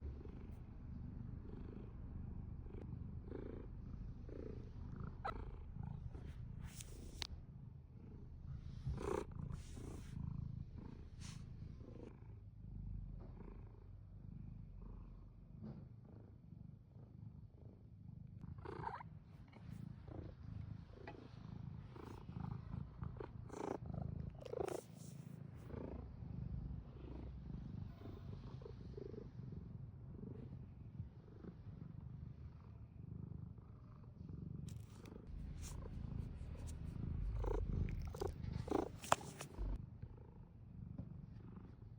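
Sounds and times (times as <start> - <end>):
cat purring: 0.0 - 41.9
brief rustles and clicks: 38.2 - 39.7.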